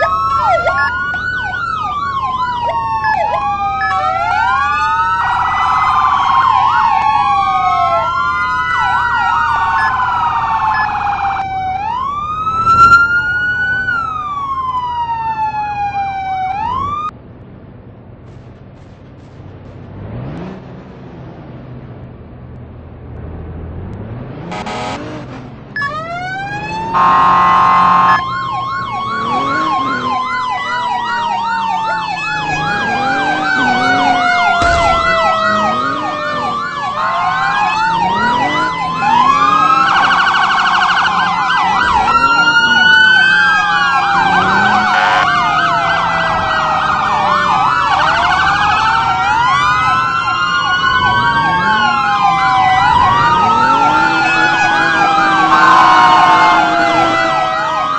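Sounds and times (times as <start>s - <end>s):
fire truck sirens wailing: 0.0s - 17.2s, 24.0s - 57.9s
horn blasts: 24.5s - 25.3s, 26.9s - 28.2s, 44.4s - 45.5s.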